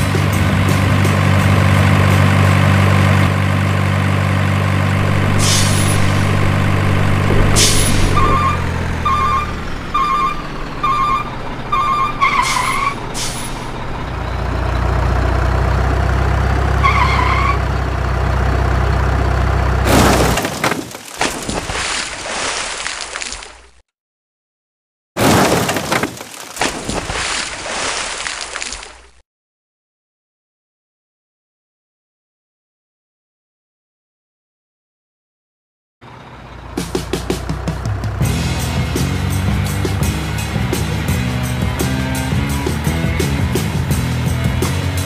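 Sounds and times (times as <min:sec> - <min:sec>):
diesel engine idling: 0:00.5 - 0:20.0, 0:36.0 - 0:45.0
loud truck crash: 0:04.6 - 0:17.8, 0:18.4 - 0:22.2, 0:25.2 - 0:27.7
air brake hissing: 0:05.0 - 0:06.6, 0:12.2 - 0:13.8.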